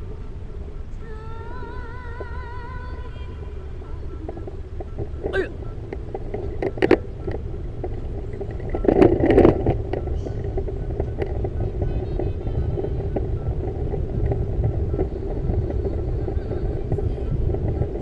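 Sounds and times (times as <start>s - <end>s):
bicycle rattling: 0.0s - 18.0s
wind and road noise: 0.0s - 18.0s
bicycle clicks and knocks: 4.2s - 18.0s.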